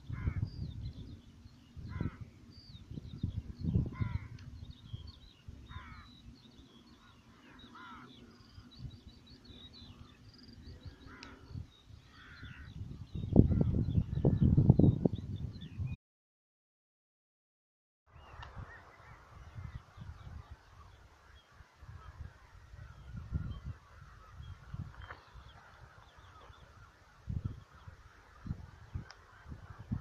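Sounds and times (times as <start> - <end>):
harsh crow-like calls: 0.1 - 0.5, 1.9 - 2.2, 3.9 - 4.4, 5.7 - 6.2, 6.9 - 8.7, 10.9 - 12.7
small birds chirping: 0.1 - 15.9, 18.1 - 30.0.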